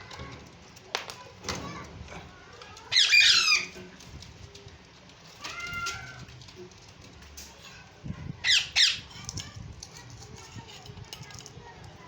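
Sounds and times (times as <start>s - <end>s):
parrot calling: 2.9s - 3.8s, 8.4s - 9.1s.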